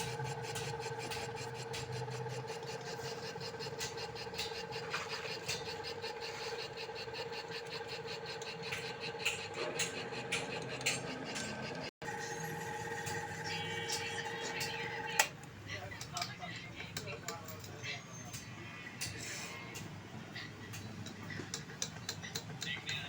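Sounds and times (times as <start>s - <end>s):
sharp machine clicks: 0.0s - 12.4s
boring machine humming: 0.0s - 15.4s.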